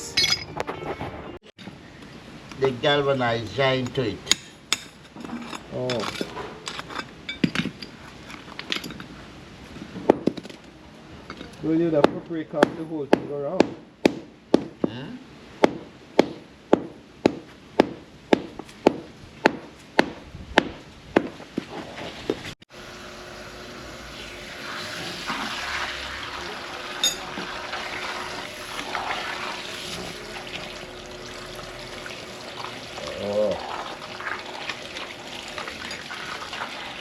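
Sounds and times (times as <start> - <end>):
water running: 22.7 - 37.0.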